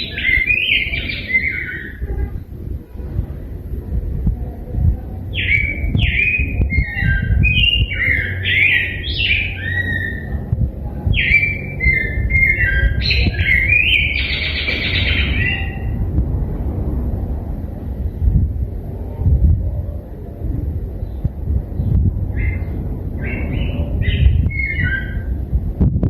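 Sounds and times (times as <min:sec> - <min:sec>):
low rumble: 0:00.0 - 0:26.0
bird singing warbled whistles: 0:05.4 - 0:10.3, 0:11.2 - 0:16.0.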